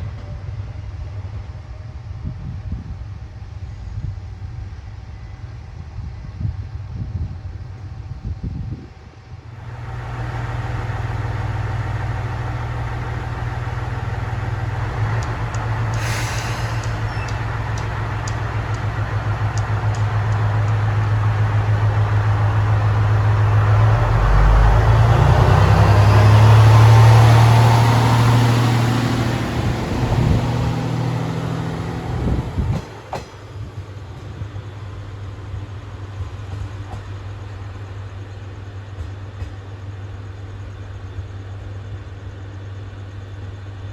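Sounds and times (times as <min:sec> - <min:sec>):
railcar engine hum: 0:00.0 - 0:43.9
light clicks: 0:15.1 - 0:20.9.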